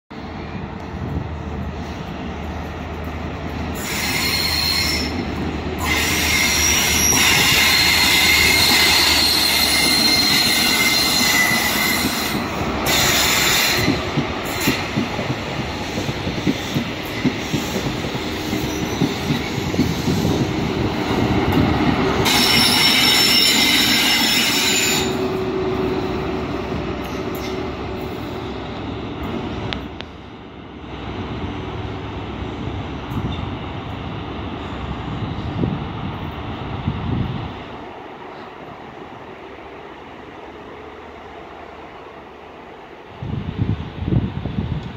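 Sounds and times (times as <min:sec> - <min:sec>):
train engine hum: 0:00.1 - 0:44.9
wheel flange squeal: 0:03.8 - 0:05.2.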